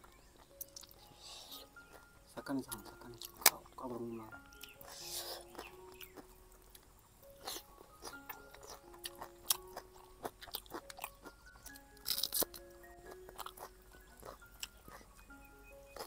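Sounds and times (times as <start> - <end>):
chewing and crunching: 0.0 - 16.0
soft background music: 0.0 - 16.0
mouth clicks: 0.4 - 6.3.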